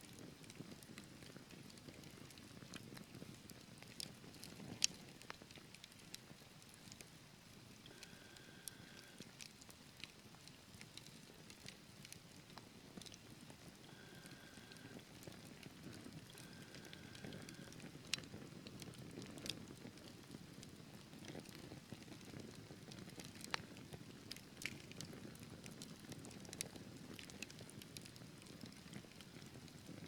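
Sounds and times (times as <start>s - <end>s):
wood fire crackling in fireplace: 0.0s - 30.0s.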